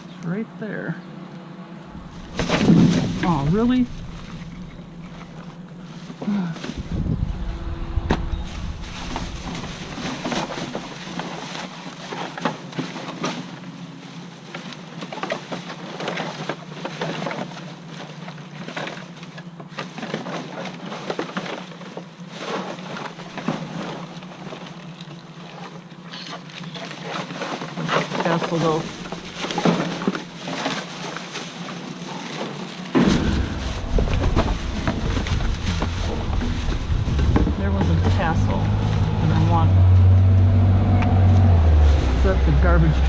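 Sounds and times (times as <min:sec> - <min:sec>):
steady low hum: 0:00.0 - 0:11.8, 0:32.9 - 0:43.0
trash rustling and clattering: 0:01.7 - 0:43.0
deep thump of handling: 0:01.9 - 0:05.9, 0:33.0 - 0:38.0.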